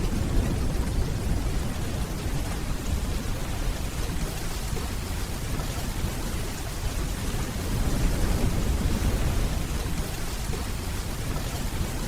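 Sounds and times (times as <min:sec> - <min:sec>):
steady rainfall: 0:00.0 - 0:12.0.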